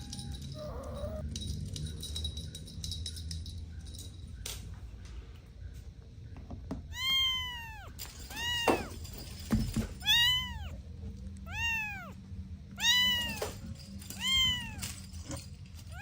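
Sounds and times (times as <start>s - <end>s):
kitten meowing: 0.0s - 1.2s, 6.9s - 9.0s, 10.0s - 10.8s, 11.4s - 12.2s, 12.8s - 13.6s, 14.2s - 14.9s.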